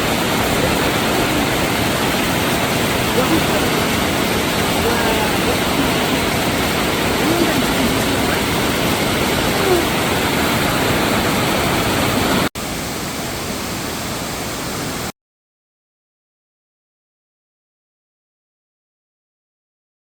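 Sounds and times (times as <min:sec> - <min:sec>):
stream water rushing: 0:00.0 - 0:15.1.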